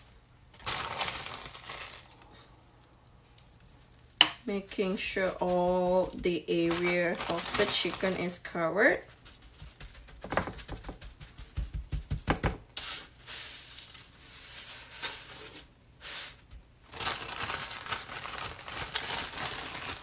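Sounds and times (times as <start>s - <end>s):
plastic bag crinkling: 0.0s - 10.8s, 16.8s - 20.0s.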